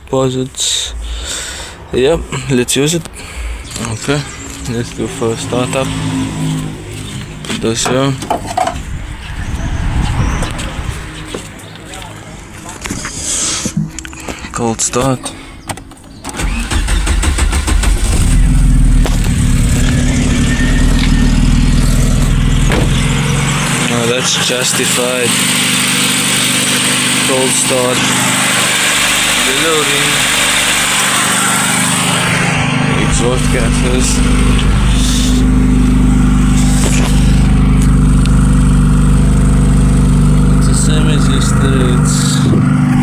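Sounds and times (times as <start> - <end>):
petrol engine starting and idling: 11.2 - 43.0.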